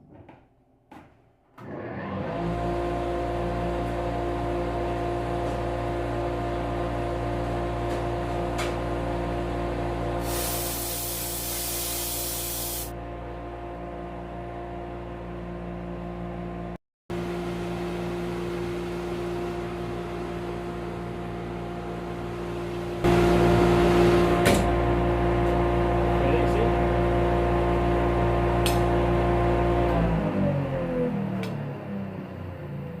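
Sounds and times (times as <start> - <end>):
spray hissing: 10.2 - 12.9.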